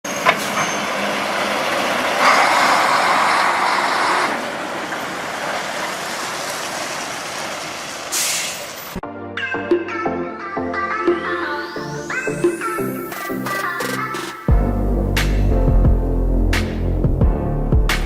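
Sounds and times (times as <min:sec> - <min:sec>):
heavy machinery running: 0:00.0 - 0:09.0.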